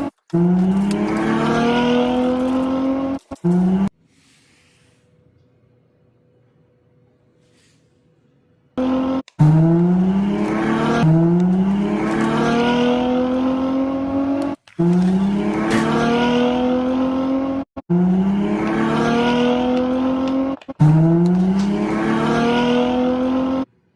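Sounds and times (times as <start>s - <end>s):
sports car engine accelerating: 0.0s - 3.9s, 8.8s - 23.7s.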